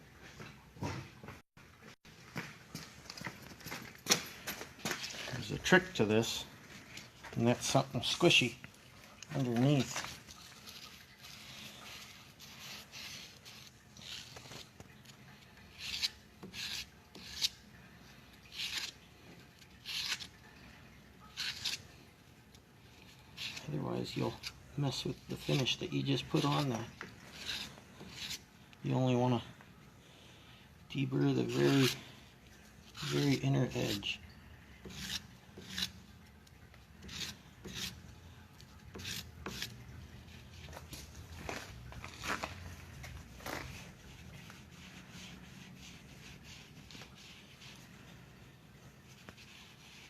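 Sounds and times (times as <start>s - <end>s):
deburring tool scraping metal edge: 34.8s - 36.0s.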